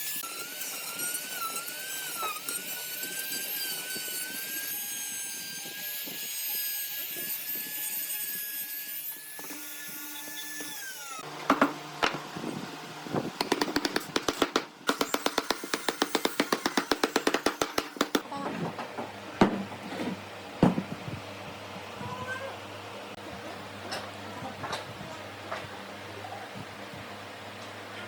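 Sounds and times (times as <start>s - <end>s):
power tool motor whining: 0.0s - 13.2s, 14.9s - 18.2s.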